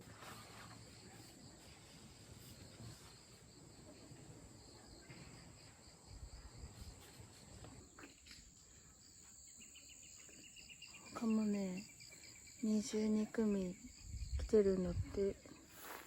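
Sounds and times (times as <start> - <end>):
high-pitched insect chorus: 4.5 - 16.0.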